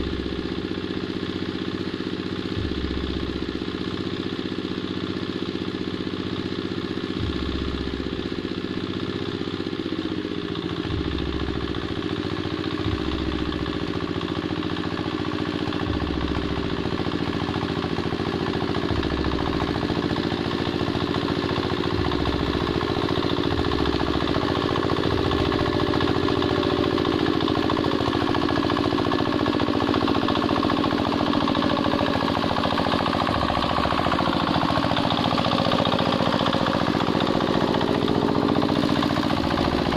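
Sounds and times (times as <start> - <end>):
hand tractor engine running: 0.0 - 39.9.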